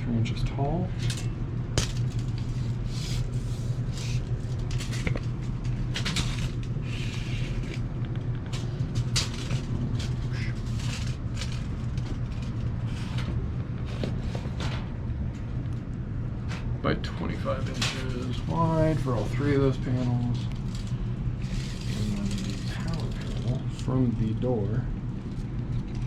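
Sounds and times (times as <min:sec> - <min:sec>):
low machinery hum: 0:00.0 - 0:26.0.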